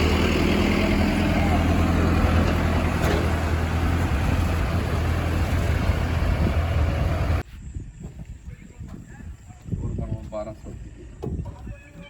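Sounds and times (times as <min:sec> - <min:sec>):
heavy diesel engine running: 0:00.0 - 0:07.4.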